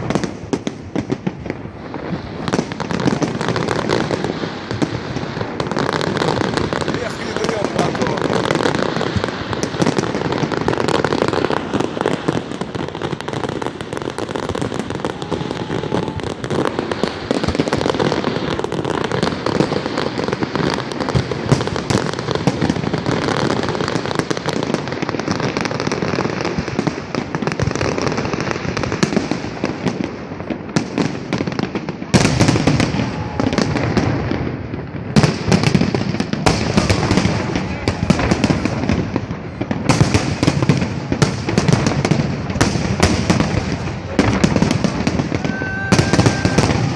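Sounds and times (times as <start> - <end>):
fireworks crackling and banging: 0.0 - 46.9.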